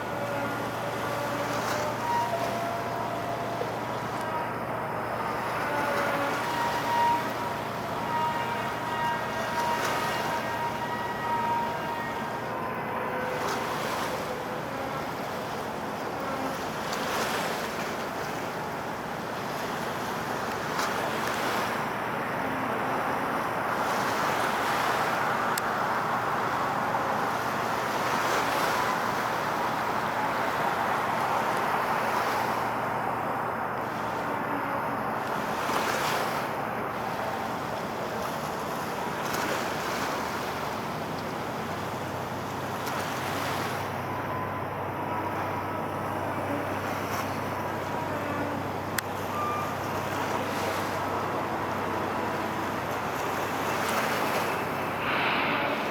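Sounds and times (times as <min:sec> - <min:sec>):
sea water washing: 0:00.0 - 0:55.9
wind gusts buffeting microphone: 0:52.7 - 0:55.9
wind rushing: 0:54.4 - 0:55.9.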